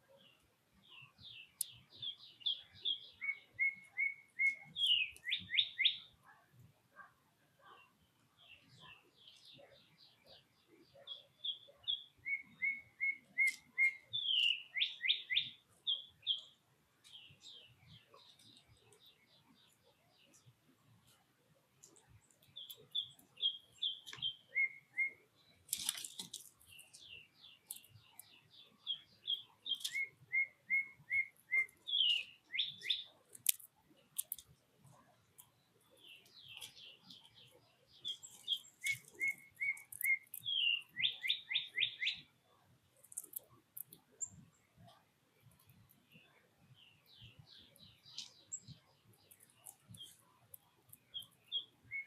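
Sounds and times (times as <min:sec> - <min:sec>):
songbird whistling: 0:02.4 - 0:06.1, 0:11.5 - 0:16.5, 0:22.9 - 0:25.2, 0:28.9 - 0:33.1, 0:38.0 - 0:42.3, 0:51.1 - 0:52.0.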